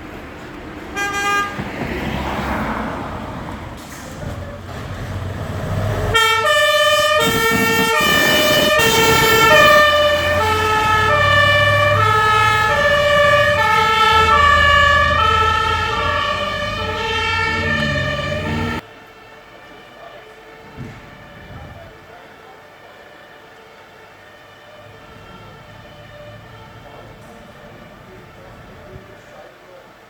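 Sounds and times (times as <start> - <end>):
two-tone emergency horn: 0.9 - 1.8, 5.8 - 18.8, 23.3 - 28.4
diesel engine running: 2.0 - 19.0, 24.0 - 29.3.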